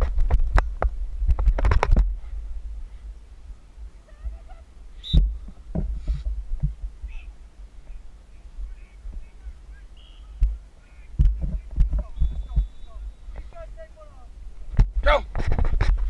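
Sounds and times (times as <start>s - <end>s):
wind rumble on camera: 0.0s - 13.6s, 14.3s - 16.0s
dull thumps: 5.1s - 7.2s, 11.2s - 13.5s
faint distant voices: 7.0s - 14.4s.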